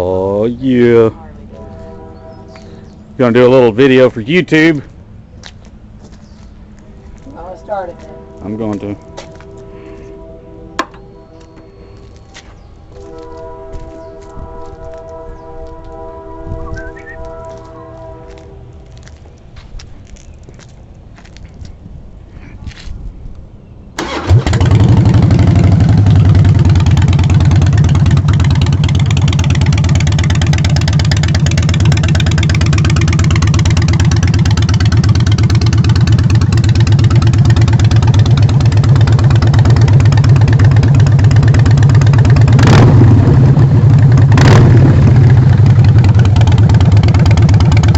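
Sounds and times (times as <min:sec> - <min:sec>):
motorcycle engine starting and idling: 0:24.0 - 0:47.9.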